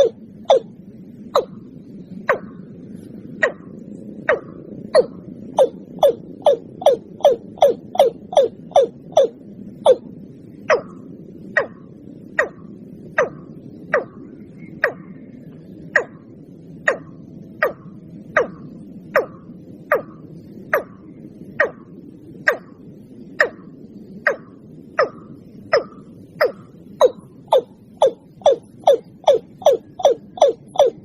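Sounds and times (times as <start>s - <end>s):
bird calling sharp notes: 0.0s - 0.7s, 1.4s - 1.6s, 4.3s - 10.1s, 13.2s - 14.2s, 24.3s - 31.0s
low background noise: 0.0s - 31.0s.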